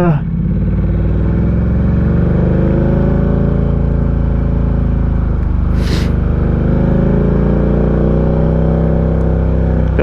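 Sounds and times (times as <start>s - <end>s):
brief hiss: 5.8s - 6.2s.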